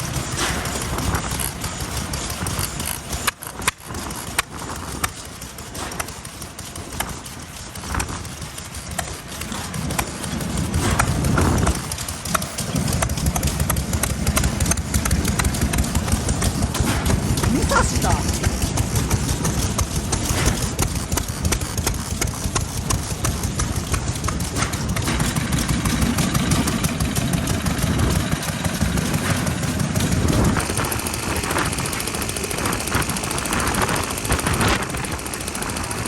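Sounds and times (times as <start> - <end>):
engine sharp pops and clicks: 0.0 - 36.0
old stationary engines running: 0.0 - 36.0.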